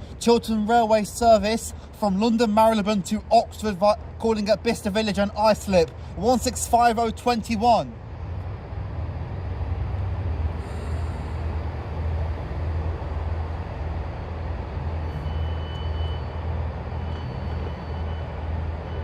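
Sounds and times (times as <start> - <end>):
diesel train engine humming: 0.0 - 19.0.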